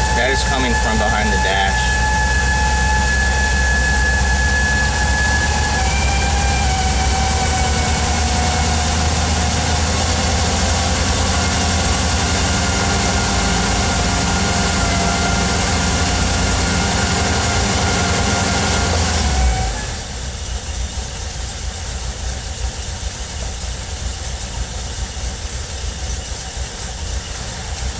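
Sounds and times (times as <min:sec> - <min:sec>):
high-pitched hum: 0:00.0 - 0:21.6
van engine running: 0:00.0 - 0:27.9.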